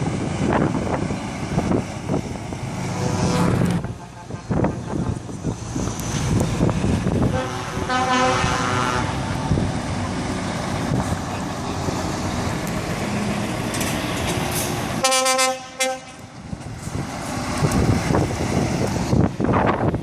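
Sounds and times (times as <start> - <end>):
lorry engines rumbling past: 0.0 - 20.0
truck air horn: 3.0 - 5.2, 7.3 - 9.2, 15.0 - 16.3.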